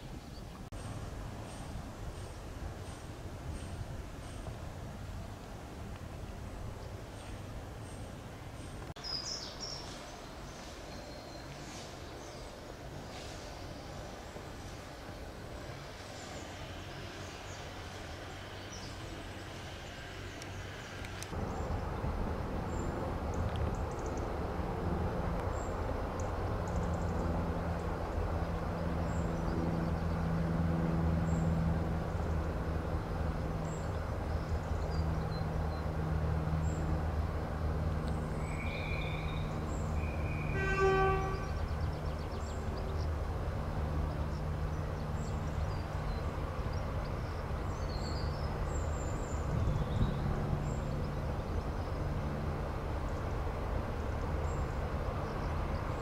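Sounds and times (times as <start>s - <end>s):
birds chirping: 6.3s - 24.4s, 38.0s - 52.4s
locomotive engine humming: 9.9s - 56.0s
locomotive horn toot: 40.0s - 41.7s.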